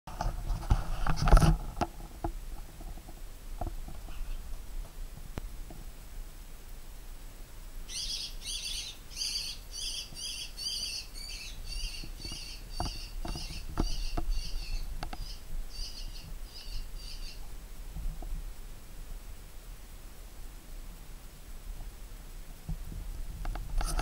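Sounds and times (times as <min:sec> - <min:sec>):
small bird harsh high calls: 0:07.9 - 0:17.4.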